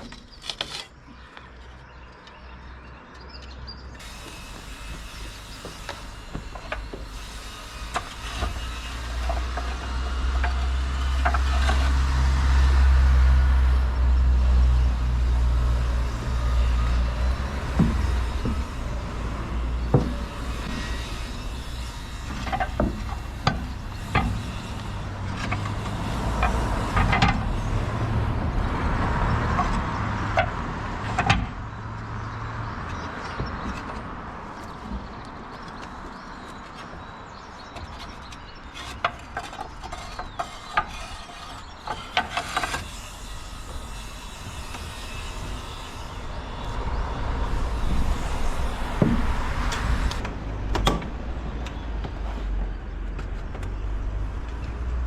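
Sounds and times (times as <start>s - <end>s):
large vehicle engine rumble: 1.1s - 55.0s.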